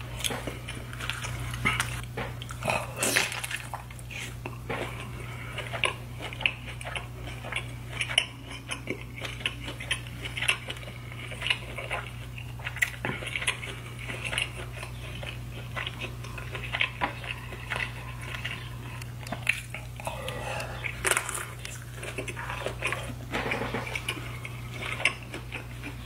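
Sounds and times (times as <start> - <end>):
steady low hum: 0.0 - 26.0
wet chewing and mouth smacks: 0.2 - 26.0.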